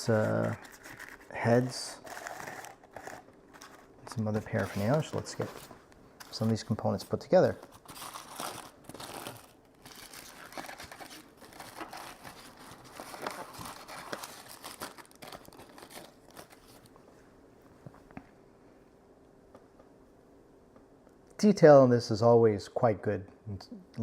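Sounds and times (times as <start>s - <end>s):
packaging wrap crinkling and tearing: 0.0s - 16.9s.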